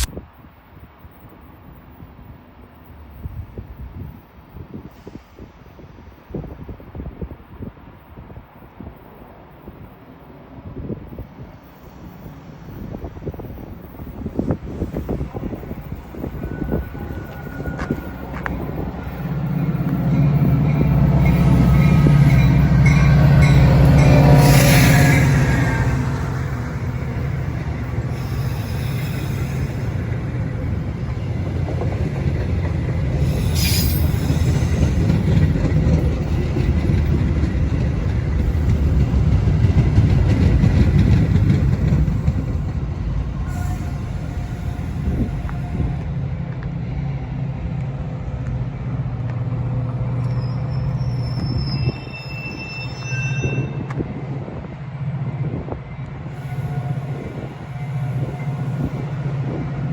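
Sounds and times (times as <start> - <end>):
diesel train drone: 0.0 - 59.9
wheels rumbling on rail: 0.0 - 59.9
high-pitched wheel squeal: 16.1 - 19.2, 20.2 - 30.2, 33.2 - 35.2, 50.2 - 54.0.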